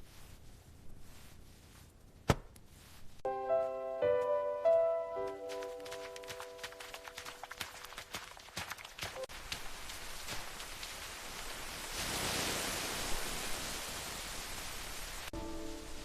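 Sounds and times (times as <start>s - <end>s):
rain hiss: 9.1s - 16.0s.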